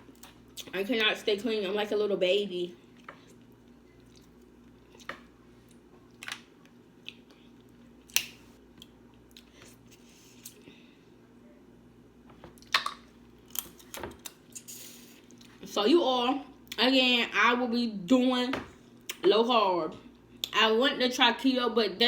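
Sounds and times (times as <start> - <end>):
faint steady hum: 0.0 - 22.0
quiet chewing: 2.8 - 10.8, 12.6 - 15.6.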